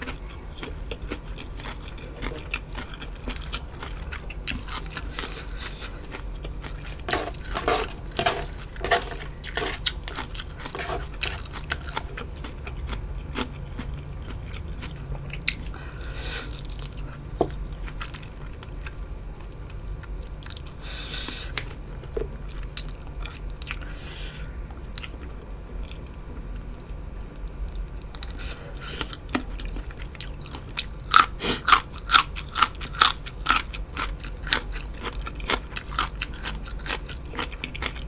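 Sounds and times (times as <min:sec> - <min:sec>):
chewing with crisp crunches: 0:00.0 - 0:38.0.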